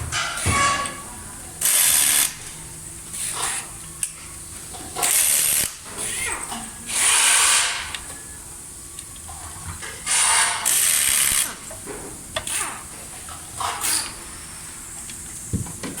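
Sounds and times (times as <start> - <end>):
electric screwdriver driving screws: 10.6 - 11.5.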